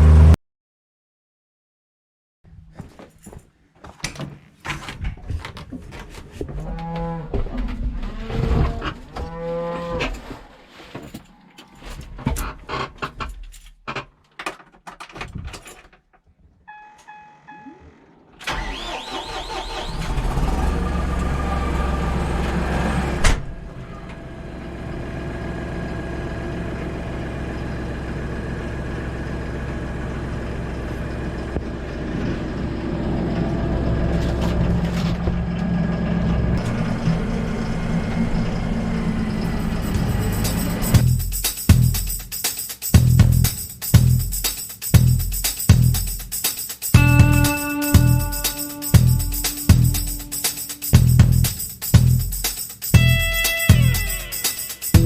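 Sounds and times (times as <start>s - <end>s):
vehicle engine idling: 24.1s - 41.2s, 51.0s - 52.3s
short electronic chime: 47.0s - 51.8s.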